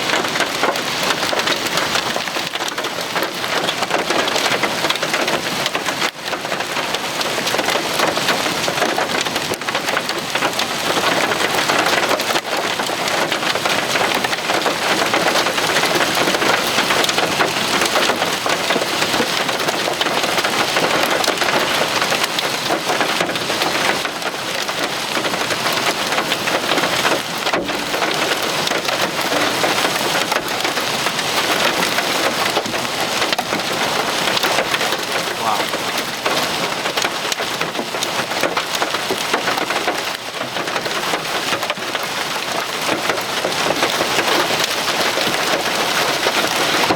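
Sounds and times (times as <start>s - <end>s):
hailstones striking hard surfaces: 0.1s - 46.9s
heavy rain hissing: 33.7s - 36.0s.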